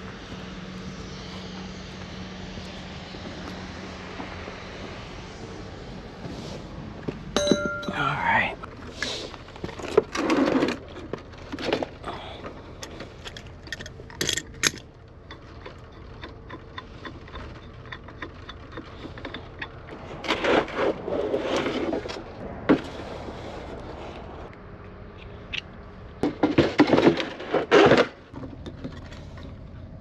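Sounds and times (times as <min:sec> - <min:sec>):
metallic tool clinks and scrapes: 0:07.4 - 0:08.3.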